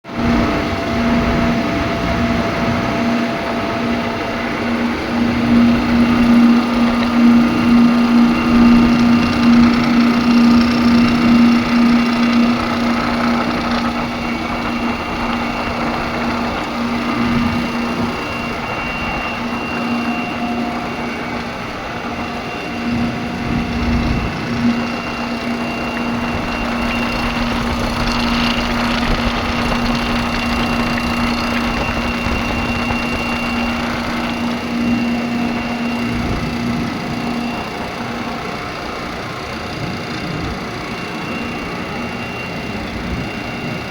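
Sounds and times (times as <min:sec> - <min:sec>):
compressor humming: 0:00.1 - 0:43.9
mechanical noise from compressor: 0:00.1 - 0:43.9.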